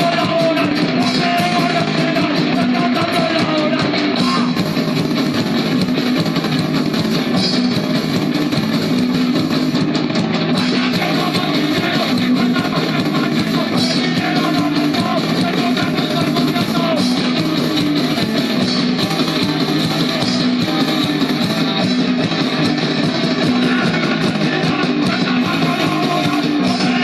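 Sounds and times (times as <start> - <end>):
punk rock music: 0.0 - 27.0.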